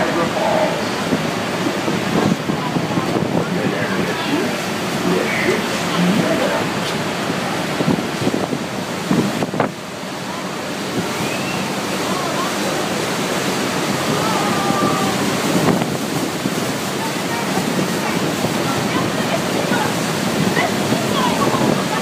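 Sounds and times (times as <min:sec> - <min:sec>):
waterfall rushing: 0:00.0 - 0:22.0
wind buffeting microphone: 0:00.0 - 0:22.0
indistinct voices: 0:02.0 - 0:07.8.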